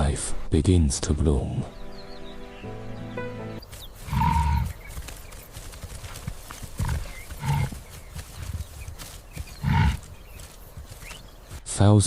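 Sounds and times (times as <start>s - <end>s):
wildebeest grunting: 4.0s - 4.9s, 6.7s - 8.5s, 9.5s - 10.4s.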